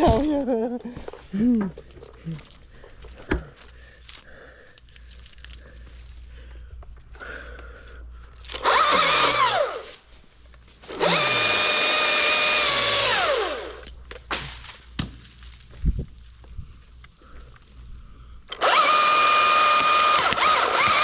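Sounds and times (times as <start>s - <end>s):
electric chainsaw whining: 8.5s - 9.9s, 10.8s - 13.9s, 18.5s - 21.0s.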